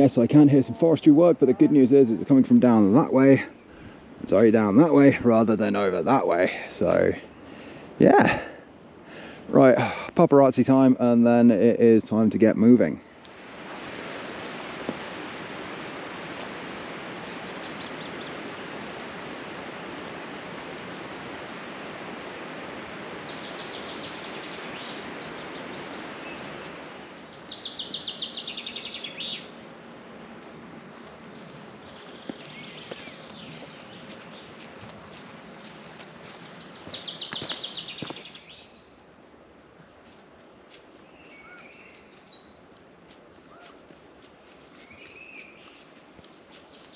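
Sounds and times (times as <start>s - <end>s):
songbird singing trilled phrases: 22.9s - 34.7s, 35.4s - 39.0s, 41.1s - 42.6s, 44.6s - 46.9s.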